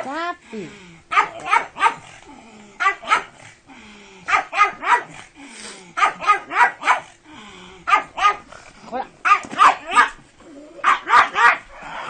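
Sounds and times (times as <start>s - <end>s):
dog growling: 0.5s - 8.9s, 9.8s - 12.0s
dog barking: 1.1s - 2.1s, 2.8s - 3.4s, 4.3s - 5.2s, 6.0s - 7.1s, 7.9s - 8.5s, 9.2s - 10.2s, 10.8s - 11.7s.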